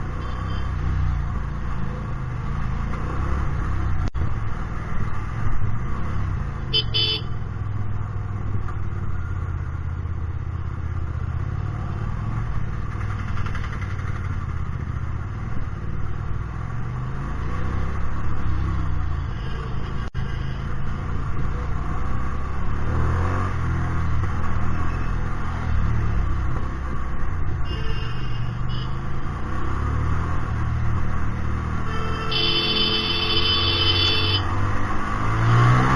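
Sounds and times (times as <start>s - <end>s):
motorcycle engine revving: 21.2s - 35.9s.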